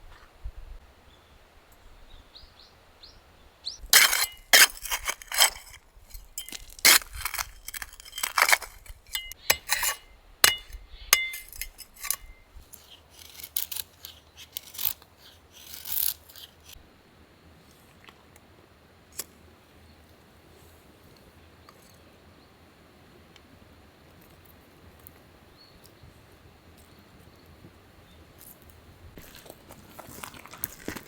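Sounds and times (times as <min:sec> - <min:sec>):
hard objects clinking and knocking: 0:04.0 - 0:12.4.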